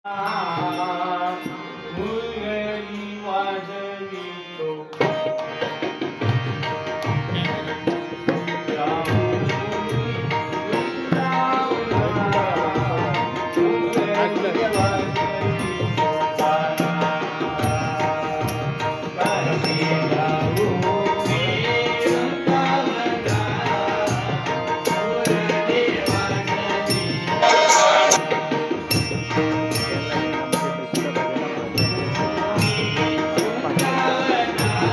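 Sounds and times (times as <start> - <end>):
person singing: 26.0 - 28.3
hand drum rhythm: 27.3 - 28.4.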